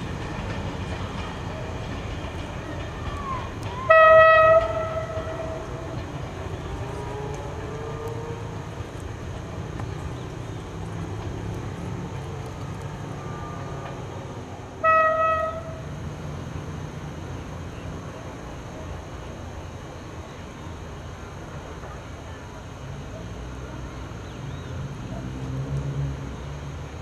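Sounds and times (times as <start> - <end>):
diesel railcar engine rumble: 0.0 - 27.0
train horn blast: 3.8 - 6.0, 14.8 - 15.9.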